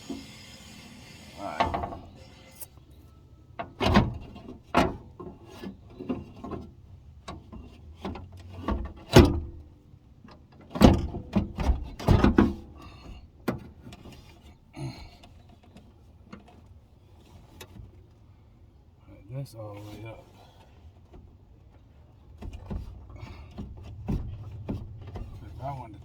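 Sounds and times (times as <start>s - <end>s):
car door parts knocking and scraping: 3.6s - 9.6s, 10.7s - 14.6s, 21.0s - 25.7s.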